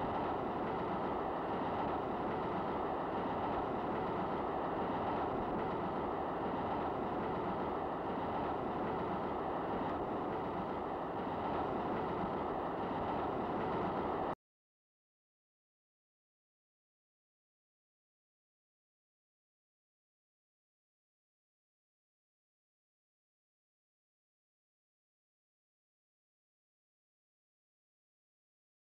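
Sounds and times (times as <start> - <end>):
train wheels rumbling on rails: 0.0 - 14.4.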